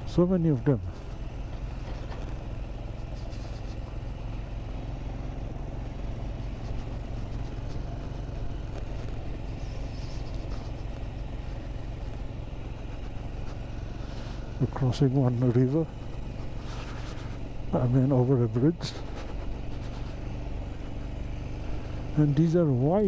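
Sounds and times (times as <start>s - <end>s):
motorcycle engine running: 0.0s - 23.0s
road and wind noise: 0.0s - 23.0s.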